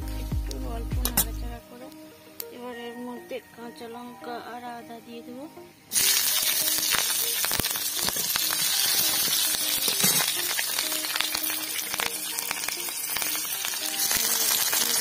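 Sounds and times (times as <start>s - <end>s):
chillies sizzling in hot oil: 5.9s - 15.0s.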